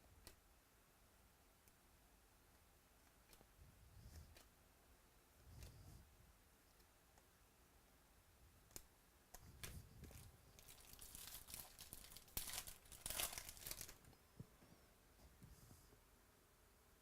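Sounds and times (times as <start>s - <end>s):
foil wrapper tearing and crinkling: 10.6s - 14.0s.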